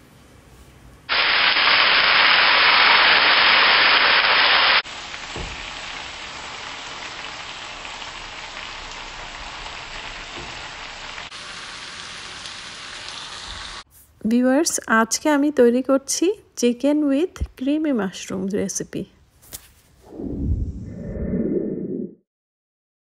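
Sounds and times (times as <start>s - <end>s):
food sizzling in oil: 1.1s - 13.9s.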